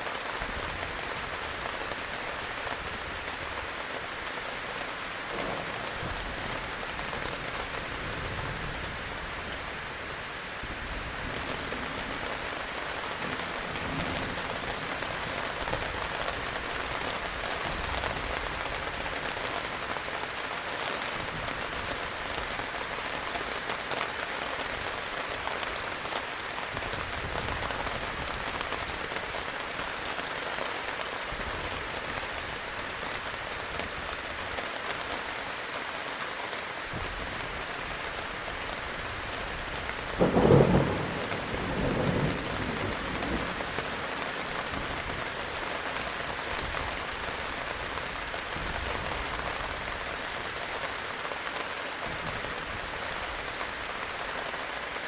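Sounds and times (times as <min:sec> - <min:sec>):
heavy rain falling: 0:00.0 - 0:55.0
thunder clap: 0:40.2 - 0:44.0.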